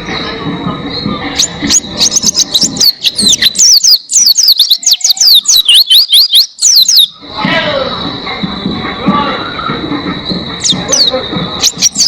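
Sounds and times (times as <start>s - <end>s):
bird singing high chirps: 0.9s - 7.2s, 9.4s - 12.0s.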